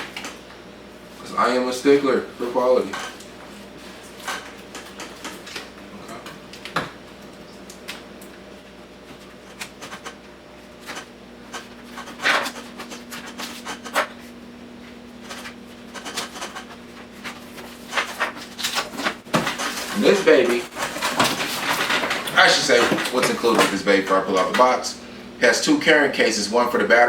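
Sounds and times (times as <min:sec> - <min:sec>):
faint steady hum: 0:00.0 - 0:27.0
packaging rubbing and scratching: 0:10.8 - 0:23.8.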